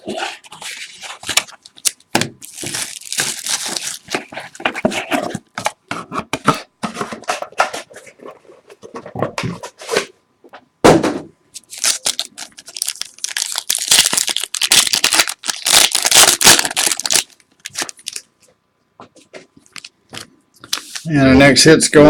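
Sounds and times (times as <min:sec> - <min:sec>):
plastic wrapping tearing and crinkling: 0:00.2 - 0:05.2, 0:11.6 - 0:18.3
thump: 0:10.8 - 0:11.3.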